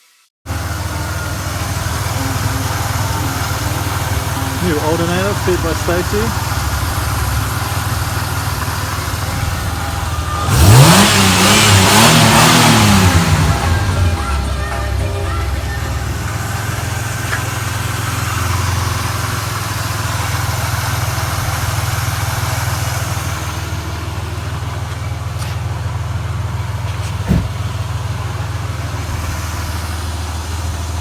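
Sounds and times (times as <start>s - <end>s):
car engine idling: 0.5s - 31.0s
short knock: 27.0s - 27.6s.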